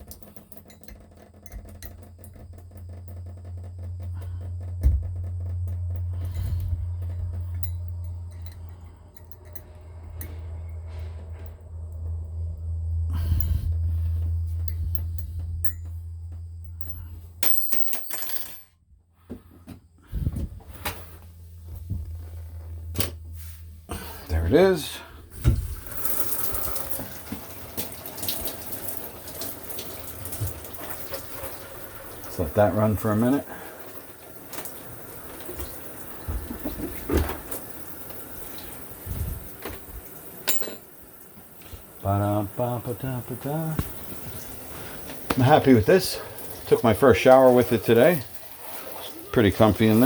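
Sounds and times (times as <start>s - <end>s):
steady low hum: 0.5s - 17.9s, 18.8s - 26.2s, 36.0s - 48.4s
metal parts and tools clinking: 16.6s - 18.8s, 40.4s - 40.9s
shower water spraying: 25.4s - 40.4s, 41.0s - 50.0s.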